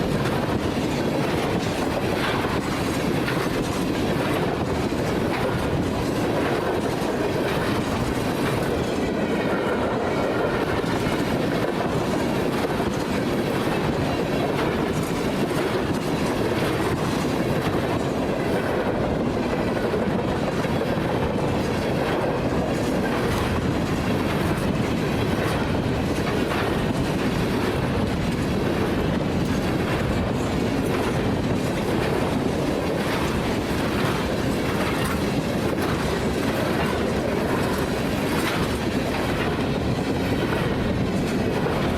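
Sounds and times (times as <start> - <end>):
freight train rumbling past: 0.0 - 41.9
wheels clicking over rail joints: 0.0 - 41.9.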